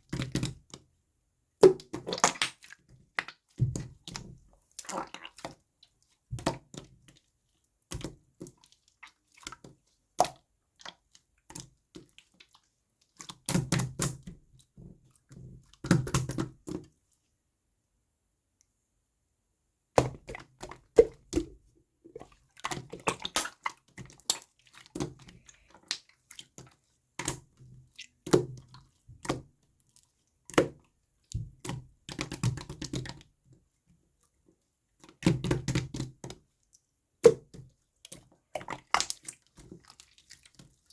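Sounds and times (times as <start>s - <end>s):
slime squelching by hand: 1.6s - 16.7s, 20.0s - 33.4s, 34.2s - 40.9s.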